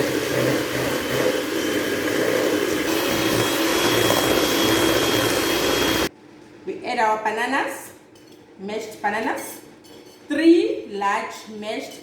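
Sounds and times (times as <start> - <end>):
electric mixer beating batter: 0.0 - 6.1.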